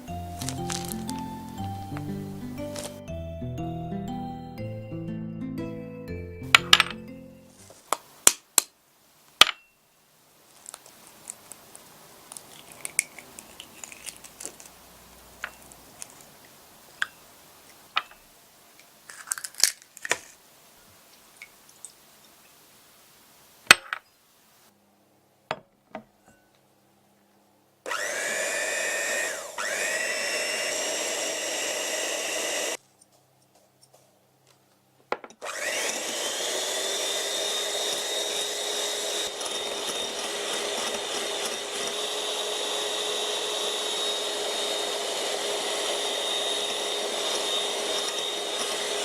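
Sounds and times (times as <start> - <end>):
electric hand mixer whipping: 0.0 - 3.0, 27.9 - 32.8, 35.4 - 49.0.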